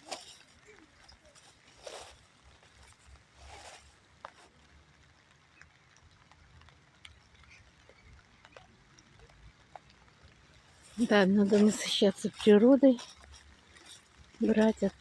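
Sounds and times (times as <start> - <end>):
soft rustle: 0.0 - 5.4, 9.7 - 15.0.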